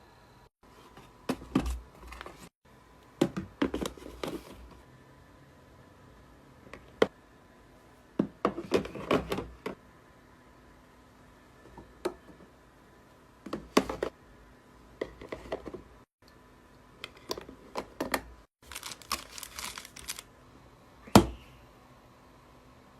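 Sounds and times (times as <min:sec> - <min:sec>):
faint steady hum: 0:00.0 - 0:22.9.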